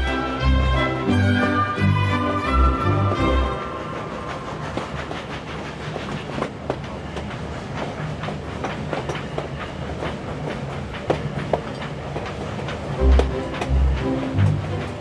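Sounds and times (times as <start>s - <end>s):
music: 0.0s - 4.6s, 13.0s - 15.0s
train rumble: 0.0s - 15.0s
train wheels clicking over rail joints: 3.1s - 15.0s.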